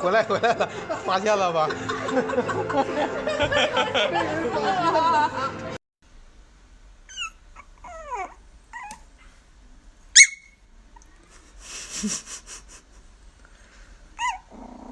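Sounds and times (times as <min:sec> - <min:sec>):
dog whimpering: 0:07.1 - 0:09.1, 0:14.2 - 0:14.9
dog yelping: 0:07.1 - 0:09.1, 0:10.2 - 0:10.6, 0:14.2 - 0:14.9.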